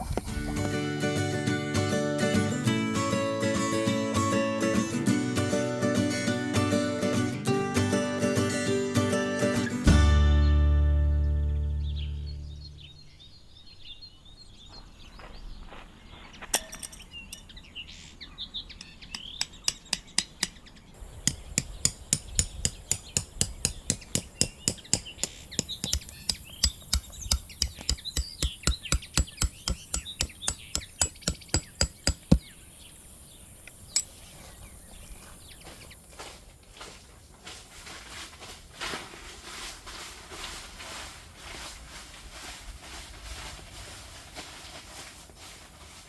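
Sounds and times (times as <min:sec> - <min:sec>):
birds chirping: 0:10.4 - 0:36.0
sharp repeated knocks: 0:21.2 - 0:32.5.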